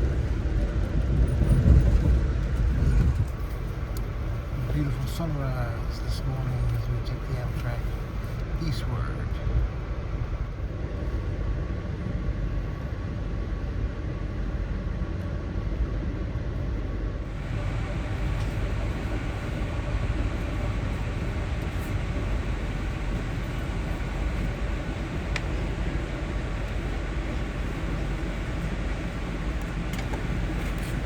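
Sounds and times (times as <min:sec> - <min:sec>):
train rumbling and rolling: 0:00.0 - 0:31.0.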